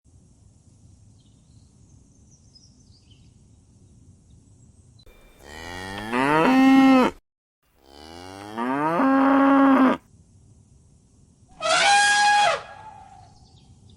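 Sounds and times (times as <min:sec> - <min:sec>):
cow mooing: 0:05.1 - 0:07.2, 0:07.8 - 0:10.0.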